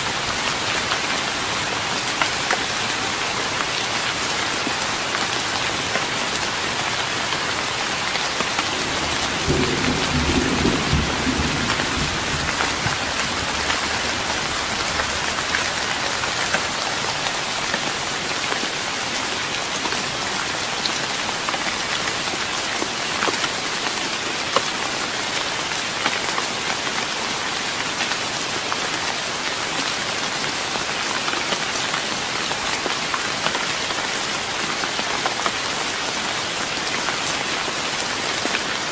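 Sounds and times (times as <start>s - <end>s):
rain pattering on wooden deck: 0.0s - 38.9s
thunder rolling: 8.7s - 15.6s.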